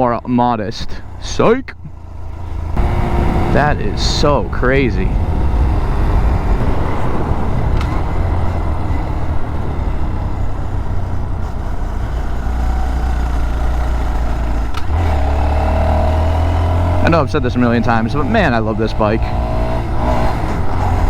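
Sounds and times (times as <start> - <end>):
motorcycle engine running: 0.8 - 21.0
steady whine: 1.6 - 12.4
wind noise on microphone: 2.7 - 11.8.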